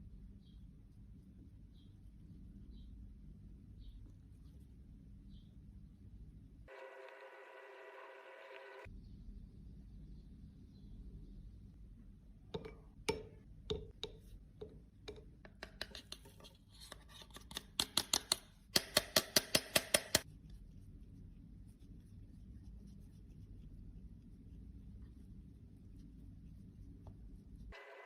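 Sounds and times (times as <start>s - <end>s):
hand tools clicking and snipping: 17.4s - 20.2s.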